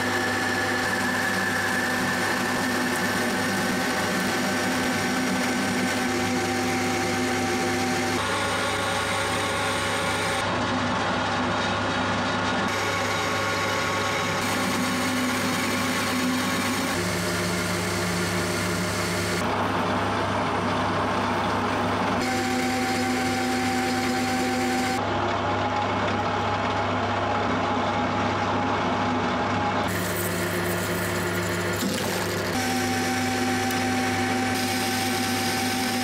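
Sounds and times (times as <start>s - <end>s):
power tool motor humming and whining: 0.0s - 10.5s, 12.7s - 21.1s, 22.0s - 25.0s, 29.8s - 36.0s.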